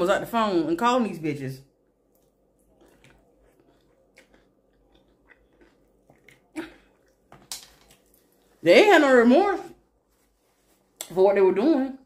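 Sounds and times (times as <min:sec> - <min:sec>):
person chewing food: 0:01.8 - 0:08.6.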